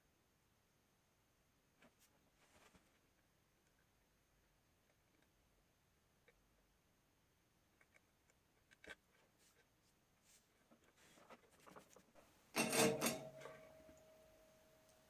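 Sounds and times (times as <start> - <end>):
scratching and rubbing on wires: 1.8 - 3.2, 7.8 - 13.5
faint steady tone: 12.2 - 15.0
object clattering: 12.5 - 14.0.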